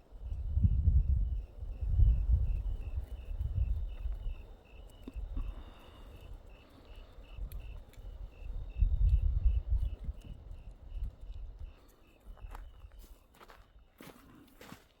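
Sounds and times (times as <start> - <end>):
cricket chirping: 0.0 - 14.8
faint ticks: 4.0 - 12.6.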